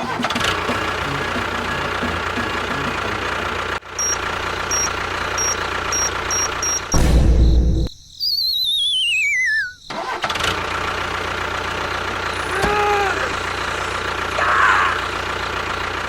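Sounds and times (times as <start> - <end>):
engine running: 0.0 - 7.1, 10.2 - 16.0
short high beeps: 4.0 - 6.9.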